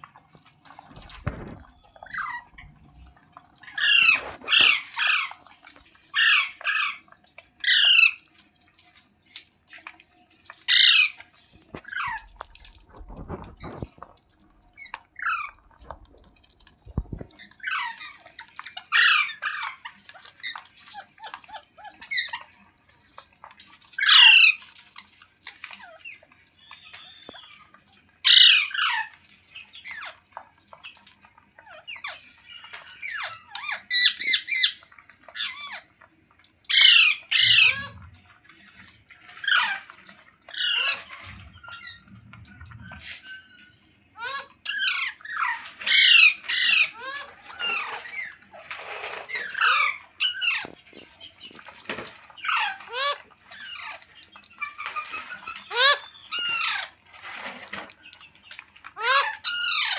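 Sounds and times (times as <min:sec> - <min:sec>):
soft parrot chatter: 0:00.0 - 0:59.9
parrot squawking: 0:01.0 - 0:05.4, 0:06.1 - 0:07.0, 0:07.6 - 0:08.2, 0:10.7 - 0:11.2, 0:14.8 - 0:16.0, 0:17.0 - 0:22.4, 0:24.0 - 0:24.6, 0:28.2 - 0:29.1, 0:32.9 - 0:35.9, 0:36.7 - 0:38.0, 0:40.5 - 0:42.1, 0:42.9 - 0:50.8, 0:52.4 - 0:54.0, 0:54.6 - 0:57.0, 0:59.0 - 0:59.9.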